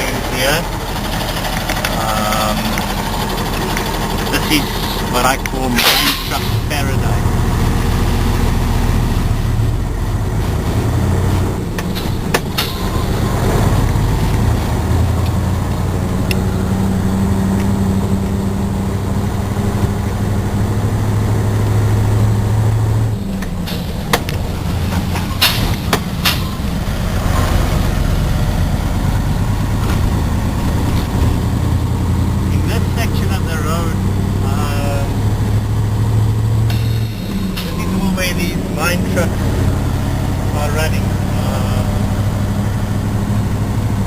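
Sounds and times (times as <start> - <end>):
truck diesel engine hum: 0.0 - 44.0
sharp clicks or rattles: 1.0 - 2.0.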